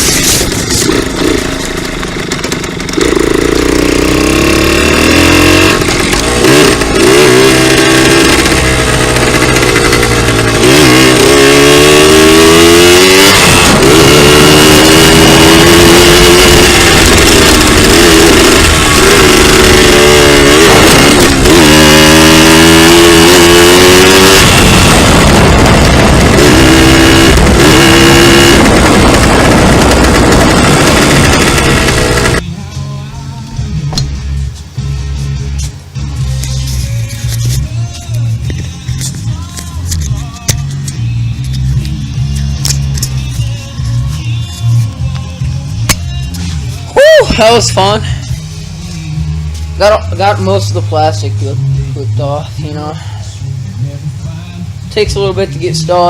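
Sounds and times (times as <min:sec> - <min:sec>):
dirt bike engine revving: 0:00.0 - 0:32.4.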